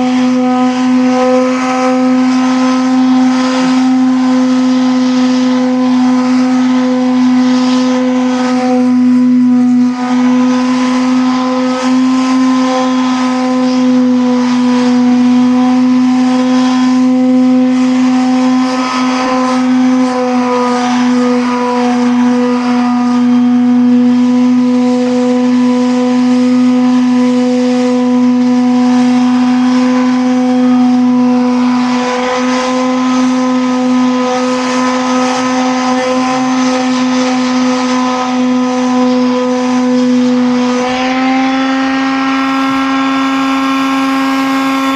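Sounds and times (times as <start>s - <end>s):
motor humming steadily: 0.0s - 26.6s, 38.6s - 44.9s.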